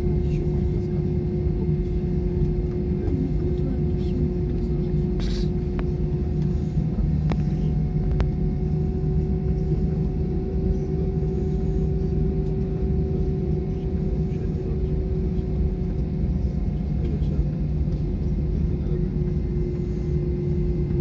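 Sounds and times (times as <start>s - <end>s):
jet engine rumble in cabin: 0.0s - 21.0s
steady engine whine: 0.0s - 21.0s.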